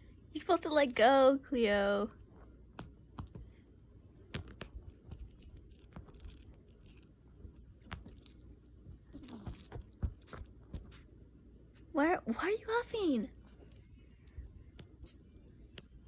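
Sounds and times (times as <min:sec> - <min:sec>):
kitten biting and tugging object: 0:02.1 - 0:11.1, 0:13.4 - 0:16.0.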